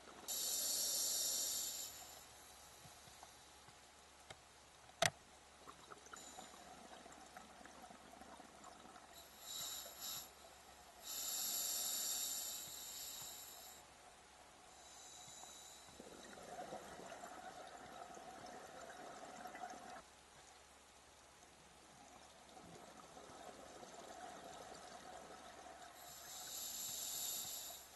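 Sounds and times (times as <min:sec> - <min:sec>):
regulator breathing hiss: 0:00.3 - 0:03.6, 0:09.2 - 0:13.9, 0:14.7 - 0:16.1, 0:26.0 - 0:27.9.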